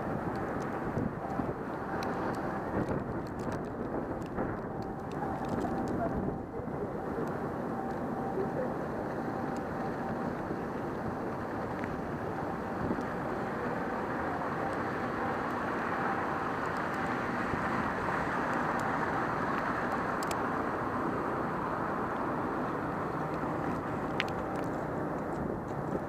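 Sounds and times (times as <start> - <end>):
street noise: 0.0 - 26.0
faint clicks: 19.6 - 20.4.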